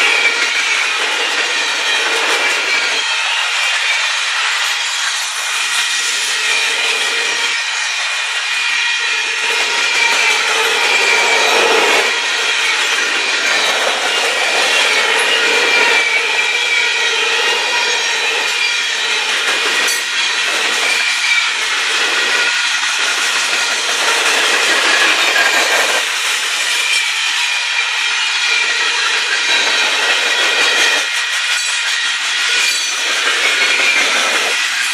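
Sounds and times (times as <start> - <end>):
freight train wheels on rails: 0.0 - 34.9.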